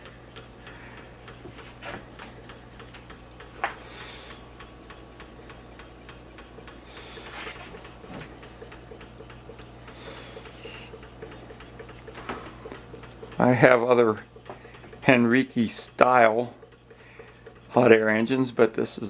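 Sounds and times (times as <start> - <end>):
hot air engine ticking: 0.0 - 19.0.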